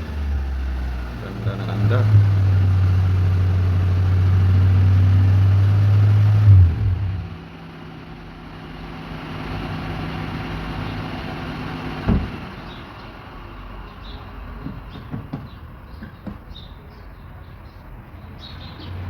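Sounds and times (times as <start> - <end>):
car engine idling hum: 0.0 - 19.0
thump: 12.1 - 12.4.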